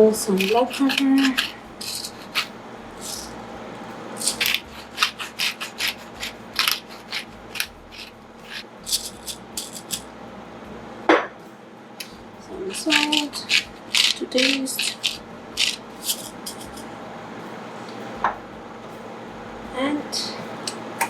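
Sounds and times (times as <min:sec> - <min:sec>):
pepper mill grinding: 0:00.0 - 0:10.1, 0:12.0 - 0:16.9.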